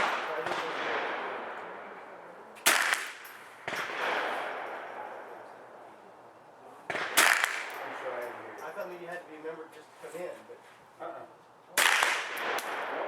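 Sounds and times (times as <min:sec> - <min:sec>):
gunshots: 0:00.0 - 0:01.6, 0:02.6 - 0:05.2, 0:06.9 - 0:08.2, 0:11.8 - 0:13.0
gunshot echo: 0:00.0 - 0:01.8, 0:02.6 - 0:05.4, 0:06.9 - 0:08.2, 0:11.8 - 0:13.0.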